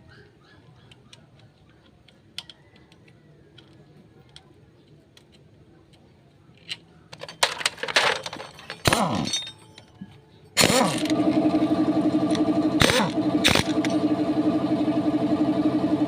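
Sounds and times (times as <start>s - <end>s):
metal clicks and knocks: 0.9s - 4.5s, 6.6s - 10.2s
steady mechanical running: 10.6s - 16.0s.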